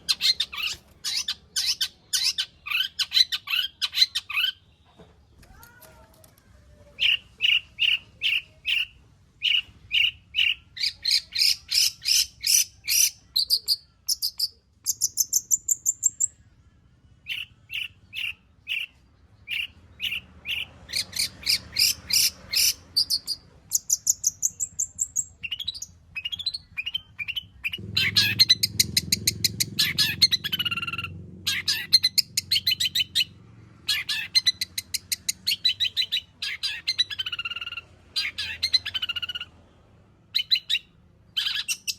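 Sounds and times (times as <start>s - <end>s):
shrike singing: 17.2s - 39.5s.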